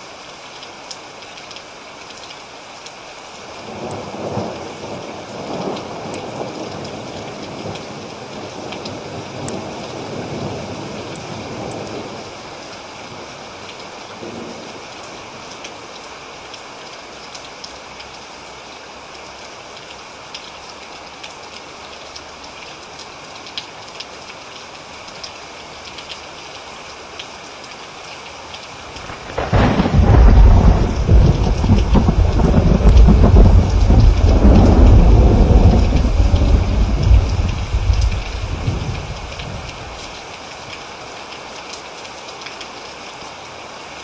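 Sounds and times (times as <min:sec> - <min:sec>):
steady rain falling: 0:00.0 - 0:44.0
raindrop ticks: 0:03.7 - 0:09.7, 0:11.1 - 0:12.4, 0:19.8 - 0:43.0
loud thunderclap rumbling: 0:29.0 - 0:40.0.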